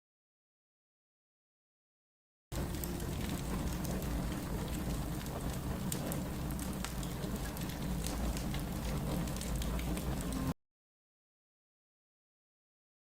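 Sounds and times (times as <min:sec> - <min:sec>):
wood fire crackling: 0:02.6 - 0:10.5.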